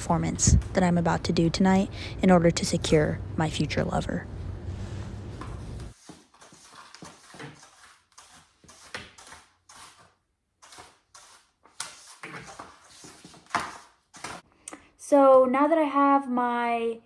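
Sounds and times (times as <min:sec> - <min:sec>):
swishing scraping cleaning strokes: 0:04.8 - 0:14.4.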